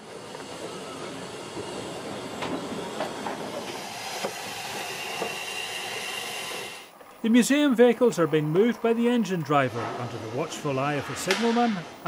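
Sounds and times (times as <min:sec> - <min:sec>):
steady hiss from train: 0:00.0 - 0:06.9.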